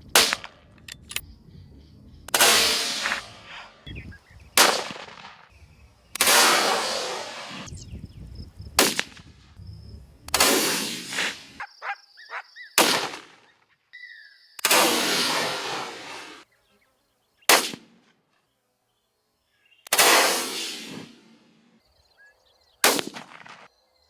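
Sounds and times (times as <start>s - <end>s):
rifle shots echoing: 0.1s - 1.2s, 4.6s - 5.5s.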